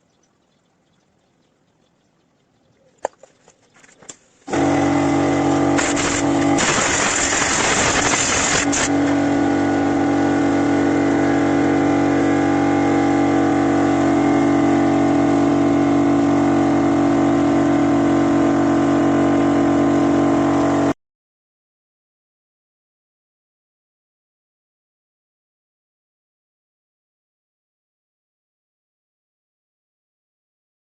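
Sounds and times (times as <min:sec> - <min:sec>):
motor humming: 0:04.5 - 0:20.9
hissing noise: 0:05.7 - 0:09.0.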